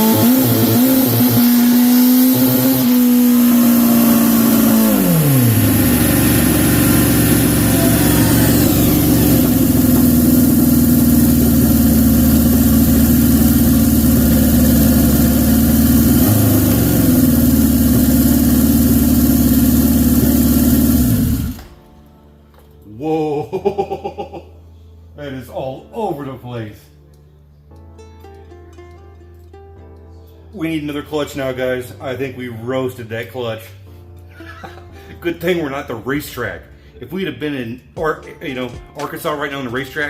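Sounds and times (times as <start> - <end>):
motorcycle engine running hard: 0.0 - 21.7.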